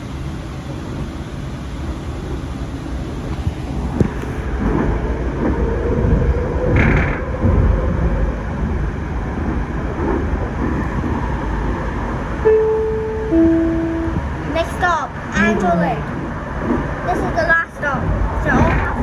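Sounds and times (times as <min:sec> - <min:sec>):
faint whine: 0:00.0 - 0:08.4, 0:10.2 - 0:19.0
train ride rumble: 0:00.0 - 0:19.0
onboard chime: 0:12.5 - 0:14.4.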